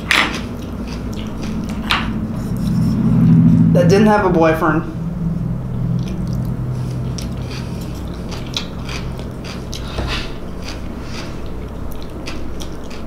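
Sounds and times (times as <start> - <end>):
person chewing with wet smacks: 0.0 - 3.0, 6.0 - 13.0
steady low hum: 0.0 - 13.0.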